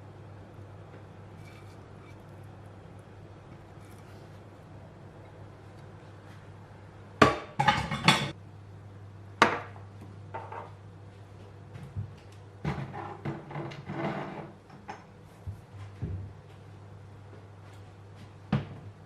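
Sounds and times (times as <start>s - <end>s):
kitchenware clinking and knocking: 7.2s - 8.4s.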